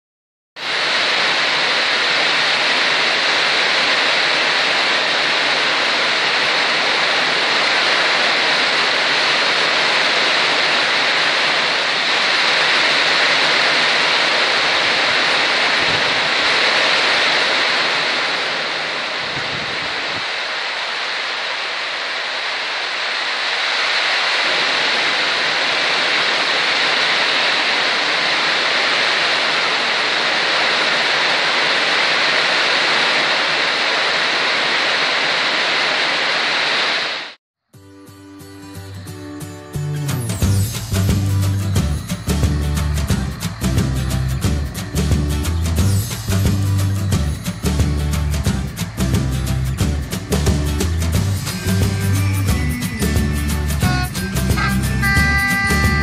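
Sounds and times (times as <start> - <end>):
heavy rain pouring: 0.6 - 37.4, 40.2 - 56.0.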